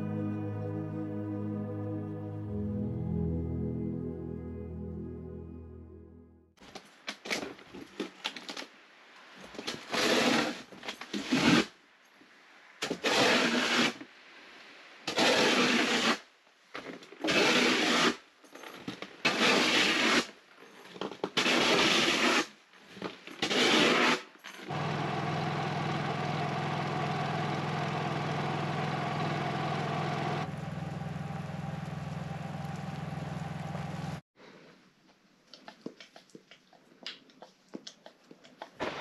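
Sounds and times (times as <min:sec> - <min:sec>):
snow shovel scraping snow: 0:09.7 - 0:11.7, 0:12.8 - 0:14.0, 0:15.1 - 0:16.2, 0:17.2 - 0:18.2, 0:19.2 - 0:20.3, 0:21.4 - 0:22.5, 0:23.4 - 0:24.3.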